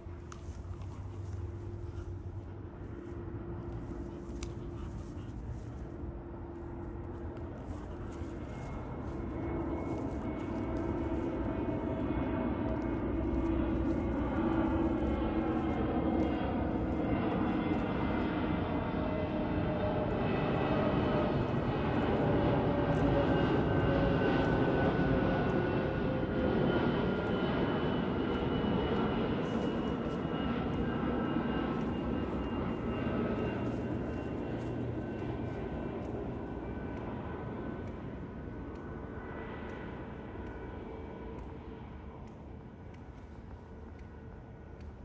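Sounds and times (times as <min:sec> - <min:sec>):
jet airliner passing overhead: 0:00.0 - 0:45.0.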